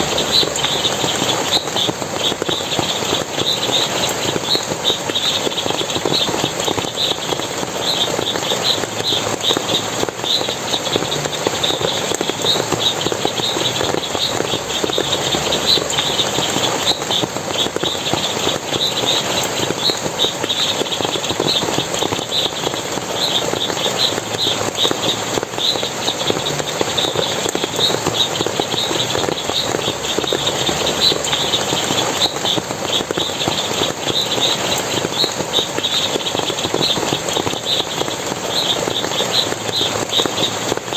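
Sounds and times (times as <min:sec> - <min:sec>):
rapid high chirping: 0:00.0 - 0:40.9
water splashing and running: 0:00.0 - 0:40.9.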